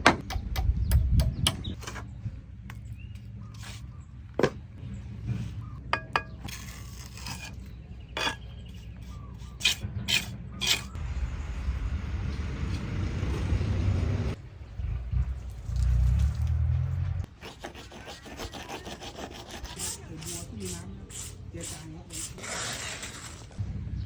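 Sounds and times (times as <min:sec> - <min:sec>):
trowel scraping brick and mortar: 0:03.2 - 0:04.6, 0:05.2 - 0:11.0, 0:17.2 - 0:23.7
trowel clinking on brick: 0:05.9 - 0:10.9.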